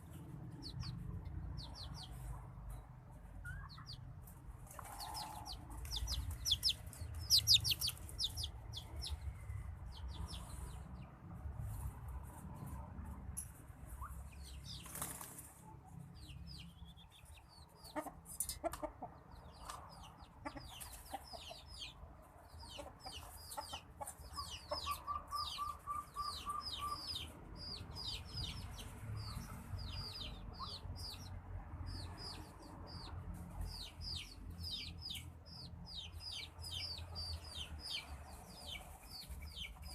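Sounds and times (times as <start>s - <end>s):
birds chirping: 4.7s - 11.2s, 16.2s - 39.9s
wings fluttering: 14.8s - 15.6s.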